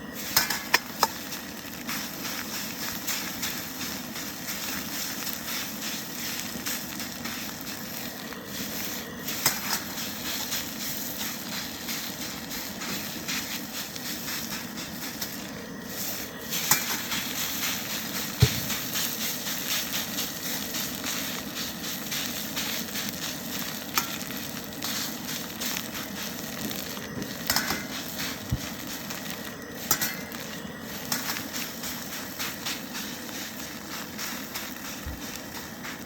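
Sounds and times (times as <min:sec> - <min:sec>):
gas burner running: 0:00.0 - 0:36.0
rice sizzling in oil: 0:00.0 - 0:36.0
spatula clicking against wok: 0:00.4 - 0:01.2.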